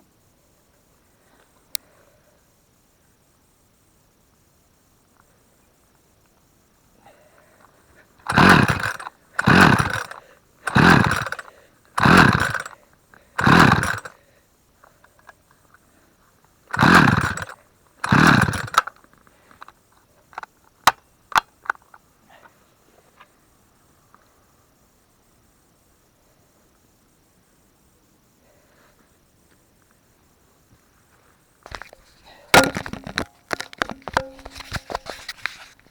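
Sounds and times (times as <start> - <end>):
chainsaw recoil starter pulls: 8.2 - 14.2, 16.7 - 19.8, 31.7 - 35.9.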